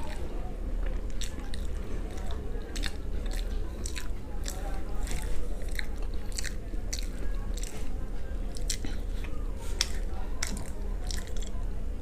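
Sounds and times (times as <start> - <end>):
person crunching fried chicken: 1.0 - 7.9, 8.5 - 11.6
mouth smacks: 1.1 - 7.9, 8.5 - 9.1.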